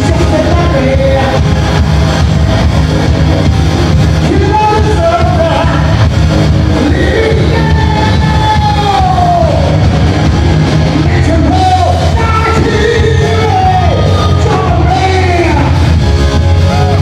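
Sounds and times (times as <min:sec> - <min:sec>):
lead singer singing: 0:00.0 - 0:01.8, 0:04.2 - 0:06.1, 0:06.7 - 0:10.0, 0:10.9 - 0:15.9
live rock band playing: 0:00.0 - 0:17.0.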